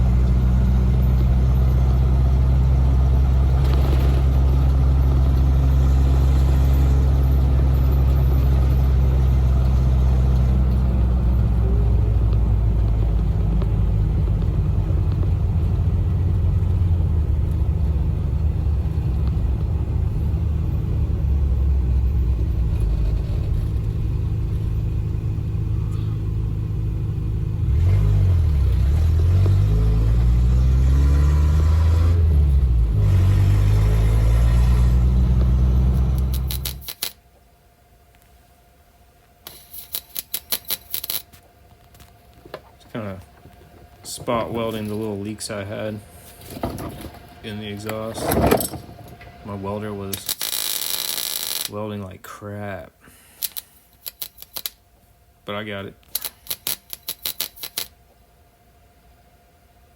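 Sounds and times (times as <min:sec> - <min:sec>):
car engine rumbling and revving: 0:00.0 - 0:37.1, 0:42.6 - 0:51.7.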